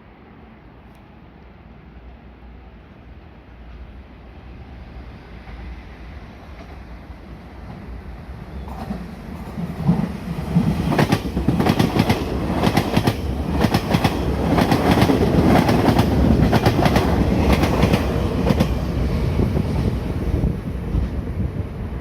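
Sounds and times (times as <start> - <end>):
train wheel and rail rush: 0.0 - 22.0.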